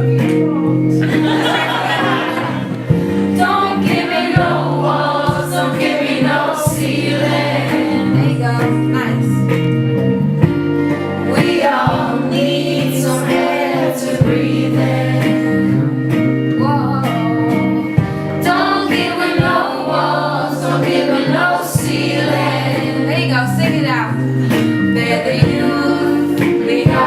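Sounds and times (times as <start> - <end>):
guitar: 0.0 - 27.0
steady low bass notes: 0.0 - 27.0
woman singing: 3.4 - 9.4, 11.3 - 15.4, 18.4 - 24.2, 25.0 - 27.0.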